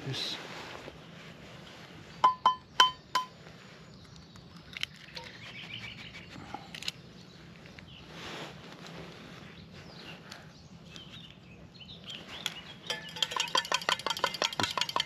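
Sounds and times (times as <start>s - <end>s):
faint birdsong: 0.0s - 15.0s
egg tapping against cup: 12.9s - 15.0s.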